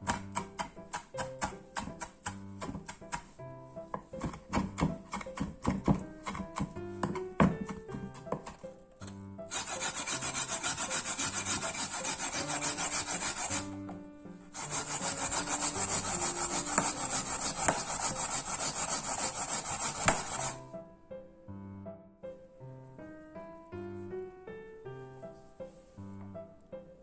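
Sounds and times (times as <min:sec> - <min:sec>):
potato rasping on a grater: 0:04.1 - 0:08.4, 0:09.5 - 0:13.8, 0:14.6 - 0:20.6.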